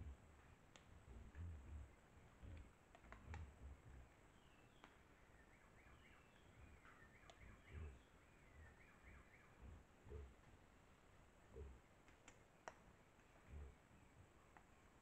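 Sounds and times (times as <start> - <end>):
soft low thumps: 0.0 - 4.1, 7.5 - 8.0, 13.5 - 13.8
light clicks: 2.4 - 3.6, 12.0 - 13.5.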